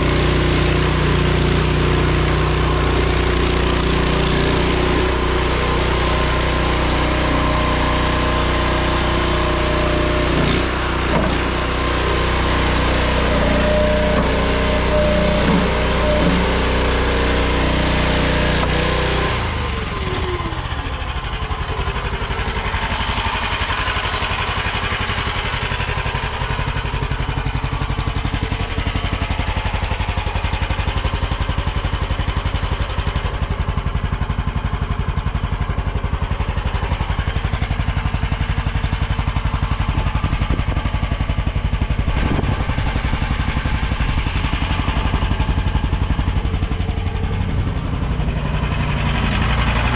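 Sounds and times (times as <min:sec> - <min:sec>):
small engine revving and idling: 0:00.0 - 0:49.9.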